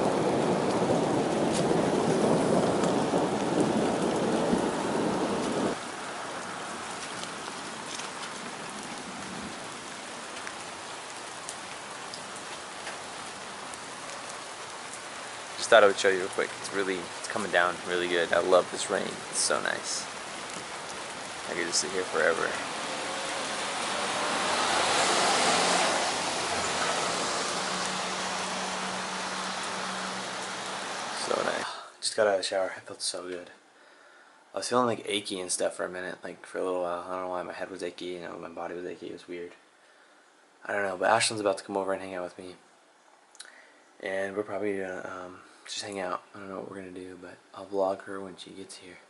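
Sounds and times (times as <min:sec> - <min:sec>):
heavy rain hissing: 0:00.0 - 0:35.8.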